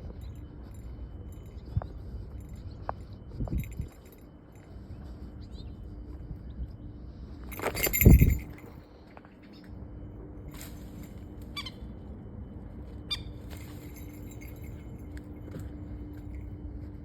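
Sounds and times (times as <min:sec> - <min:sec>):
wind rumble on microphone: 0:00.0 - 0:09.2
faint low hum: 0:00.0 - 0:17.0
high metallic clinks: 0:00.1 - 0:04.7, 0:07.5 - 0:08.8, 0:13.5 - 0:16.5.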